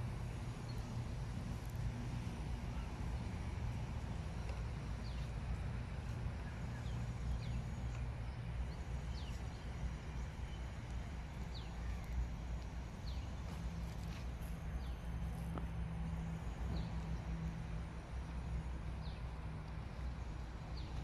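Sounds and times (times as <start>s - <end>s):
steady low rumble: 0.0s - 21.0s
birds chirping: 2.7s - 15.6s.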